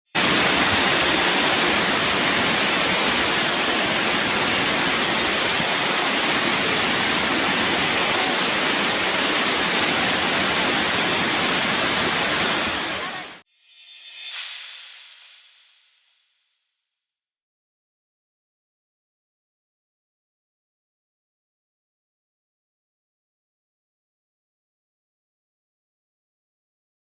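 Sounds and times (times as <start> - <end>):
waterfall roaring: 0.1 - 13.4.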